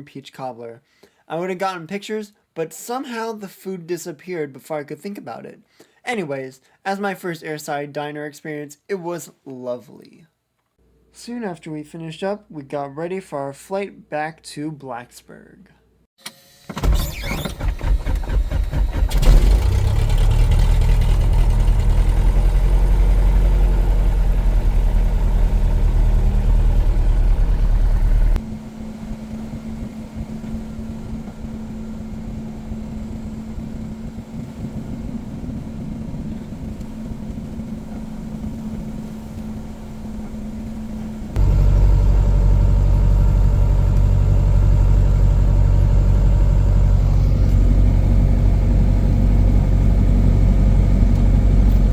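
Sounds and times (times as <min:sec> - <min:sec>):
engine starter cranking: 0:16.2 - 0:22.4
aircraft piston engine idling: 0:16.8 - 0:51.9.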